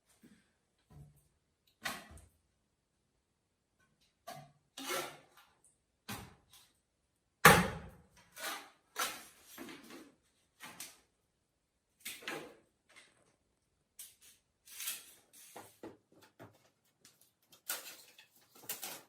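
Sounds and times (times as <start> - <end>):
objects knocking and scraping: 14.1 - 19.0.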